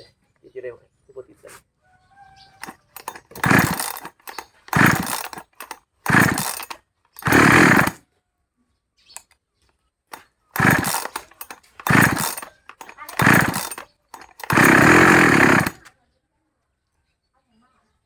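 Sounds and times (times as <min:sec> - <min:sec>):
chainsaw recoil starter pulls: 0:02.6 - 0:08.0, 0:10.1 - 0:15.9.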